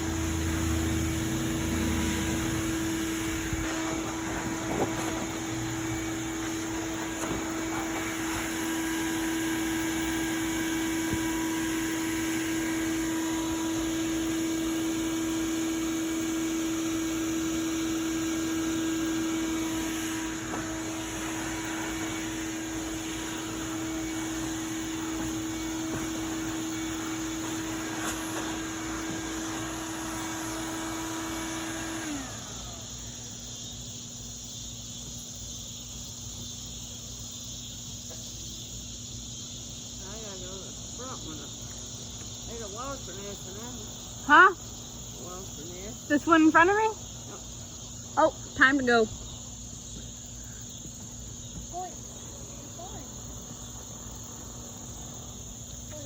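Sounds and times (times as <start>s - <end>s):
electric blower motor whining: 0.0s - 33.7s
motor winding down: 0.0s - 33.7s.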